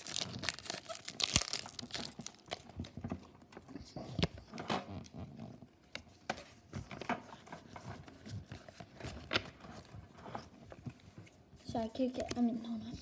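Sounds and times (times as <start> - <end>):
foil wrapper crinkling: 0.0 - 2.9.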